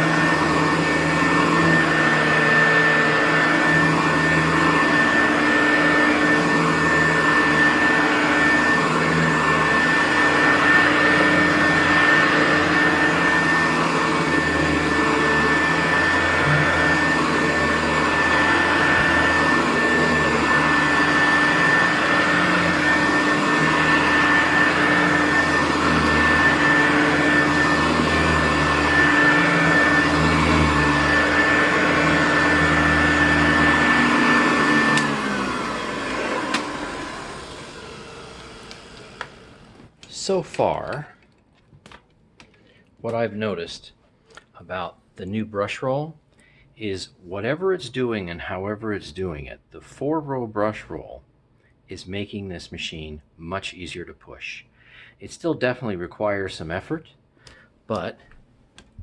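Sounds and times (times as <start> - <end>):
vacuum cleaner running on carpet: 0.0 - 40.8
high whine of vacuum motor: 0.0 - 41.0.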